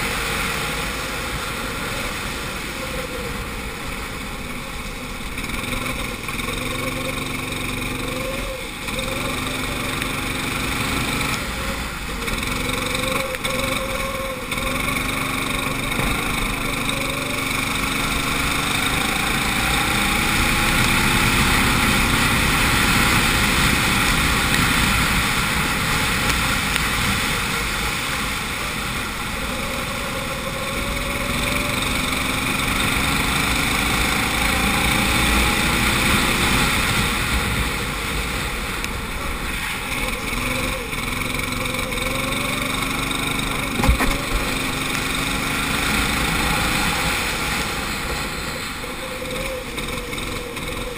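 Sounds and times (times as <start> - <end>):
go-kart engine revving: 0.0 - 50.9.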